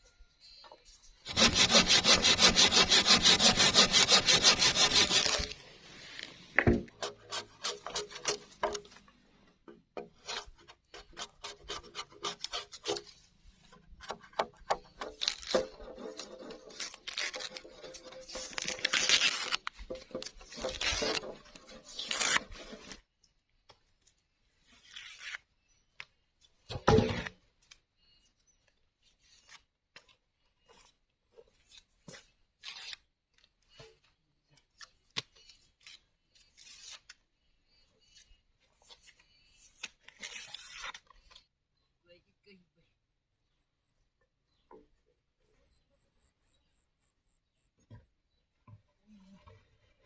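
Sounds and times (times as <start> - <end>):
hand scraping on wood: 1.2 - 8.8, 14.0 - 23.0.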